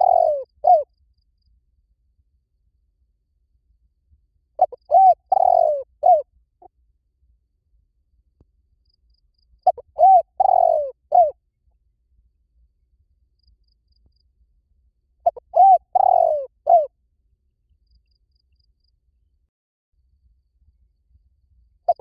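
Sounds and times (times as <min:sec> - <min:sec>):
dove cooing: 0:00.0 - 0:00.9, 0:04.6 - 0:06.2, 0:09.6 - 0:11.4, 0:15.2 - 0:16.9.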